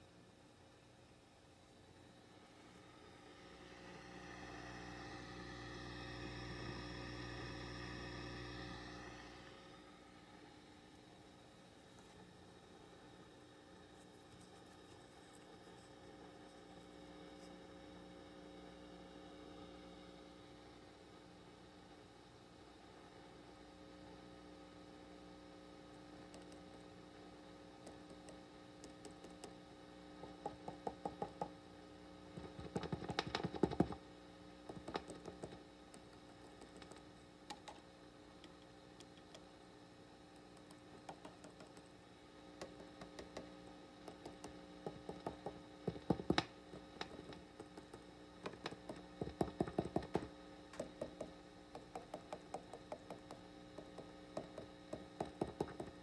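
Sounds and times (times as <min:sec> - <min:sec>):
amplifier hiss and hum: 0:00.0 - 0:56.0
rapid clicks and knocks: 0:32.4 - 0:34.0, 0:34.7 - 0:35.6, 0:42.6 - 0:56.0.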